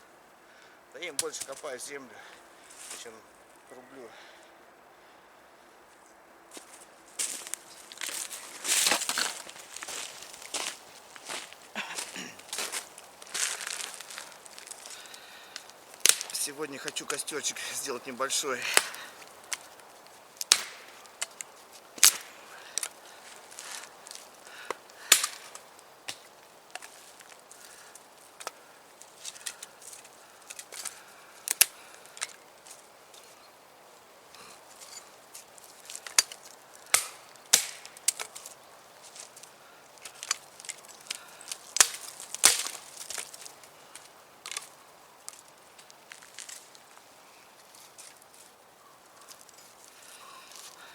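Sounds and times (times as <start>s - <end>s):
wood knocking and snapping: 16.0s - 16.4s, 20.4s - 23.0s, 36.0s - 38.4s, 40.2s - 43.3s
machete chopping wood: 20.4s - 21.3s, 22.0s - 22.9s, 25.1s - 26.3s, 36.9s - 38.3s, 41.8s - 42.8s
wood splintering: 20.4s - 28.6s, 35.9s - 38.4s, 40.0s - 43.3s
chopper knife chopping wood: 20.5s - 21.0s, 41.8s - 42.8s.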